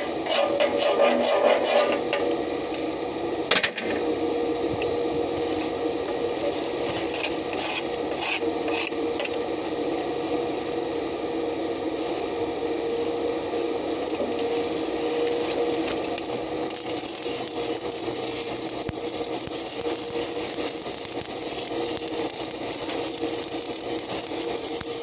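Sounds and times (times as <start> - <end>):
steady hum: 0.0 - 25.0
sharp metallic clank: 3.5 - 4.1
welding arc crackling: 14.4 - 25.0.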